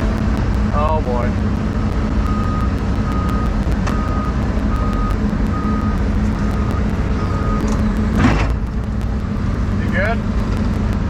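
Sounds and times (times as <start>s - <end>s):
excavator diesel engine rumble: 0.0s - 11.0s
backup alarm beeping: 1.6s - 11.0s.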